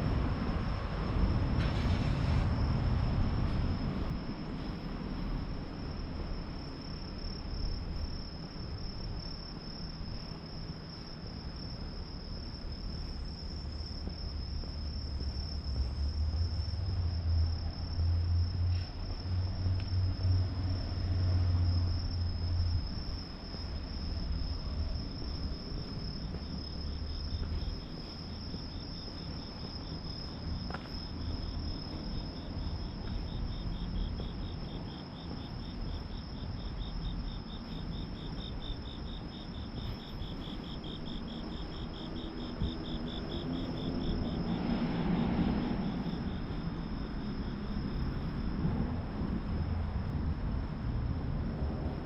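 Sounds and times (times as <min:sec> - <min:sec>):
low rumble: 0:11.3 - 0:44.4.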